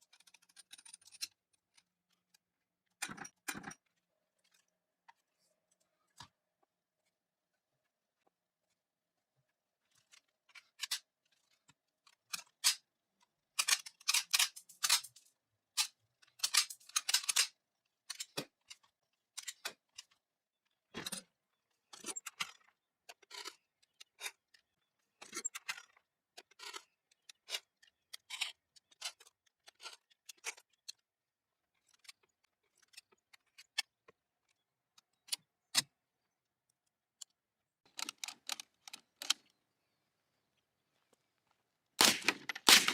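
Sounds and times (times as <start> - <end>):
sharp metallic clicks: 42.0 - 42.9.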